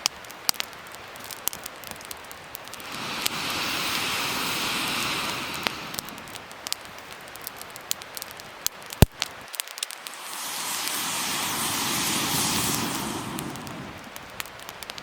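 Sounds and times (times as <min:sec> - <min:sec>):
wood fire crackling: 0:00.0 - 0:15.0
rushing hiss: 0:02.7 - 0:06.6, 0:10.0 - 0:14.5.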